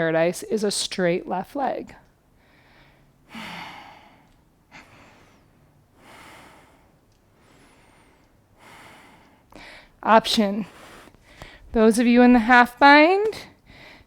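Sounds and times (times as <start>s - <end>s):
person breathing: 2.4s - 10.0s, 10.6s - 11.7s, 13.6s - 14.0s.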